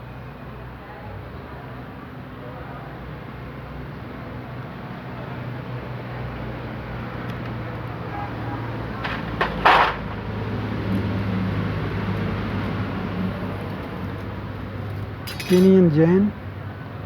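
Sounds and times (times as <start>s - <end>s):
low engine-like hum: 0.0s - 17.0s
metal parts clattering: 9.0s - 10.2s, 15.2s - 15.8s.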